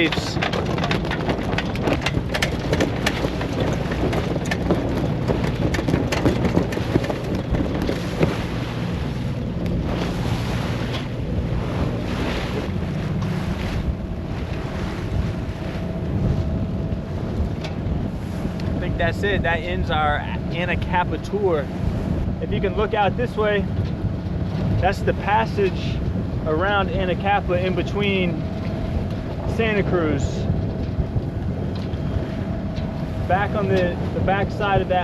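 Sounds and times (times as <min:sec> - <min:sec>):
water rushing along hull: 0:00.0 - 0:35.0
wind buffeting microphone: 0:00.0 - 0:35.0.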